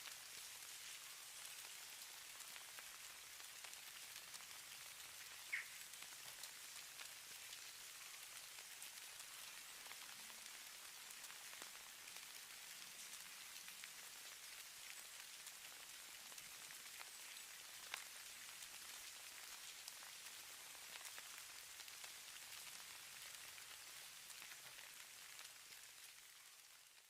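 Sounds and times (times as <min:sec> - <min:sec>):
faint high hiss: 0:05.2 - 0:06.6.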